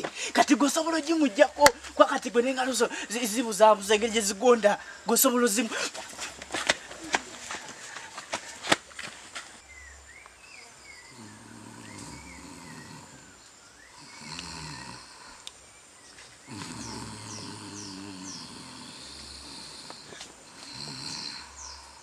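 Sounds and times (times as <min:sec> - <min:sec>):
birds chirping: 0:00.0 - 0:22.0
man snoring: 0:11.1 - 0:15.4, 0:16.4 - 0:22.0.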